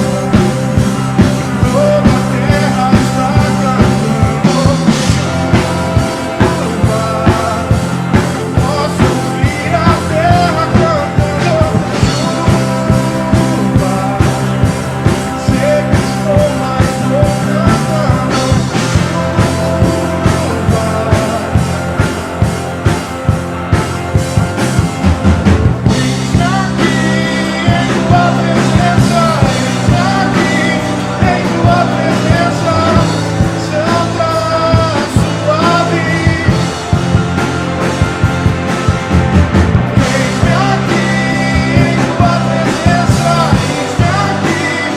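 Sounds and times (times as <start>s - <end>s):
steady drum beat: 0.0s - 44.9s
worship band playing live: 0.0s - 44.9s.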